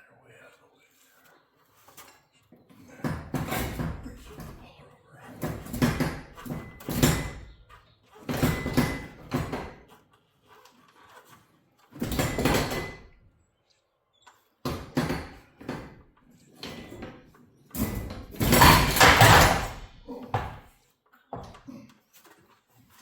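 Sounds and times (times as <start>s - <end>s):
metal hardware clattering and scraping: 17.7s - 20.5s.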